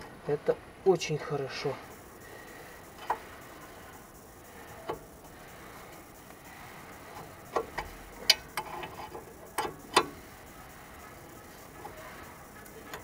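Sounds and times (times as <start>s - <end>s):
wrench tapping and clicking on metal: 7.2s - 10.2s.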